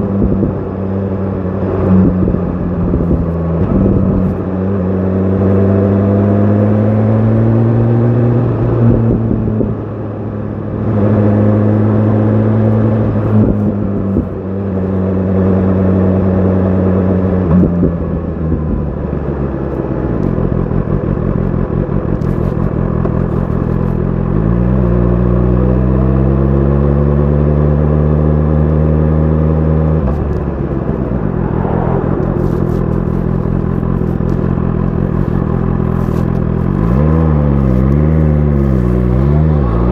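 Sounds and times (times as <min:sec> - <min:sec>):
wind noise: 0:00.0 - 0:00.8, 0:01.6 - 0:04.8, 0:07.2 - 0:10.0, 0:12.7 - 0:14.9, 0:30.0 - 0:39.9
motorcycle engine revving: 0:00.0 - 0:39.9.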